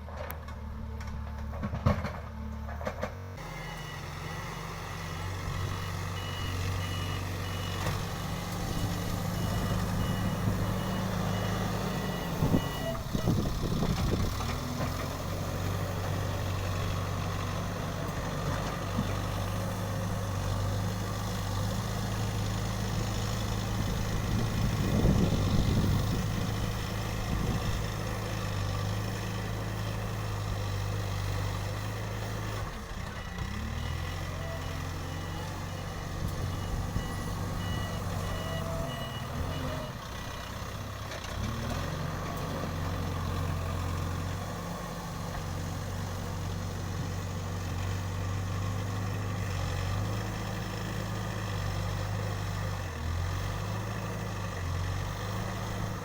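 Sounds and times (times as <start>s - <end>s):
diesel engine running: 0.0s - 56.0s
reversing alarm beeping: 5.2s - 8.1s, 8.7s - 13.5s, 33.6s - 40.0s.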